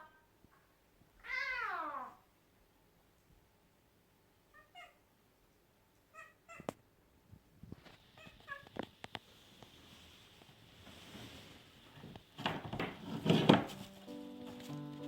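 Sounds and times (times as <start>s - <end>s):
cat meowing: 1.2s - 2.3s, 4.5s - 5.0s, 6.1s - 6.7s, 8.2s - 8.7s.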